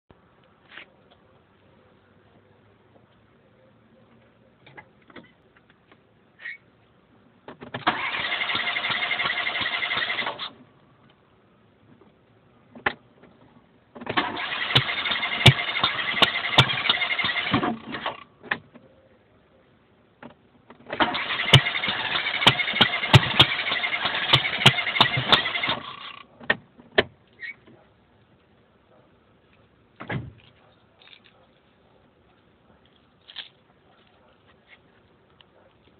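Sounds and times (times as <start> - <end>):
engine cranking on starter: 7.8 - 10.6, 14.0 - 18.2, 20.9 - 26.3.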